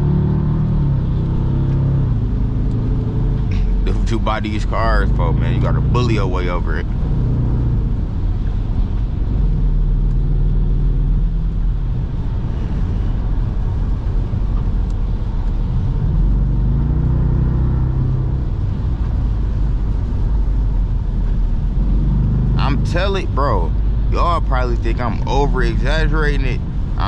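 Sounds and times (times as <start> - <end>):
car engine drone from inside cabin: 0.0 - 27.0.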